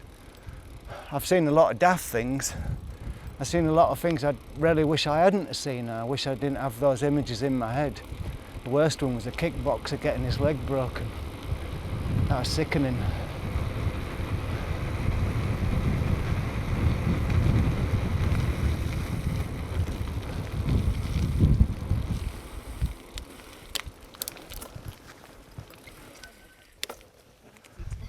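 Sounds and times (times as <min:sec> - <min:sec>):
bicycle rumbling on road: 0:00.0 - 0:28.0
wind buffeting microphone: 0:02.1 - 0:05.0, 0:06.5 - 0:25.8.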